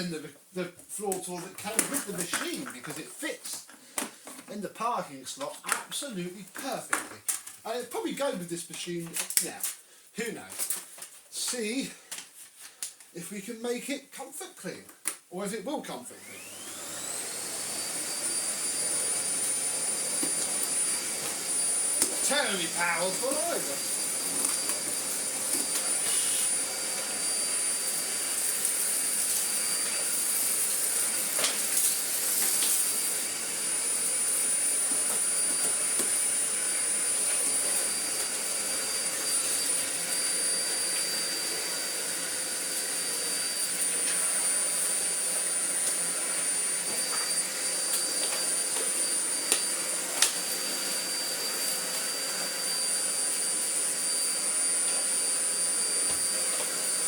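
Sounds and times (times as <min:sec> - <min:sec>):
vacuum cleaner running: 0:01.4 - 0:03.4, 0:16.1 - 0:57.0.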